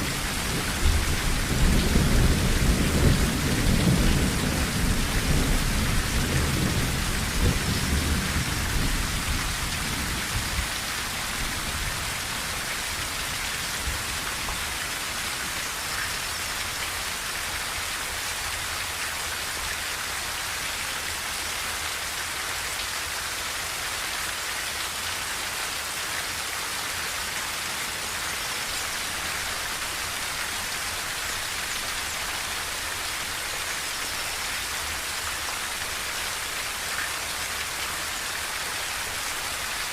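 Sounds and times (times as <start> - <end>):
low rumble of thunder: 0.0 - 12.4
rain drumming on a tin roof: 0.0 - 39.9.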